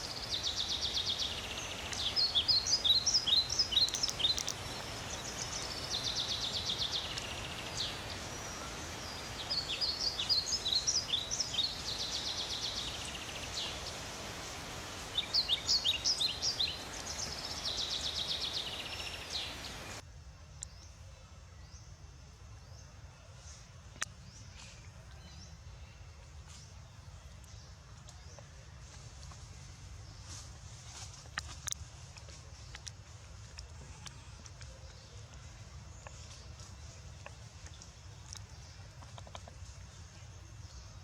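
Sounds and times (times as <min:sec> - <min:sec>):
bird song trills and chirps: 0:00.0 - 0:22.0.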